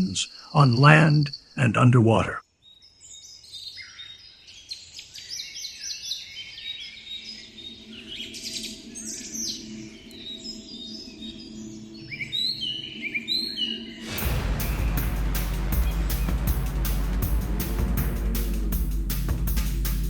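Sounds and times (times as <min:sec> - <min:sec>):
low steady drone: 0:14.0 - 0:20.0.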